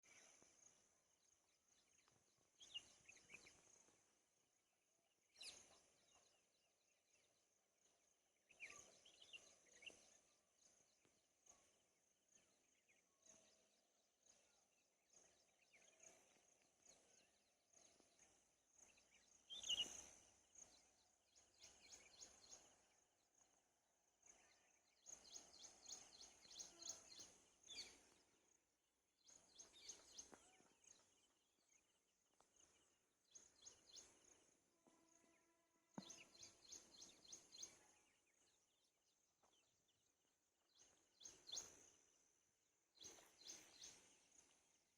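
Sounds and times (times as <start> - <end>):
faint bird chirps: 0.0 - 44.9.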